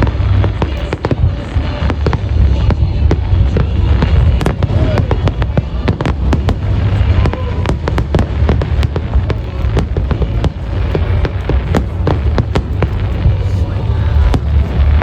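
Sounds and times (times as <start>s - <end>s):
firework cracks and pops: 0.0s - 15.0s.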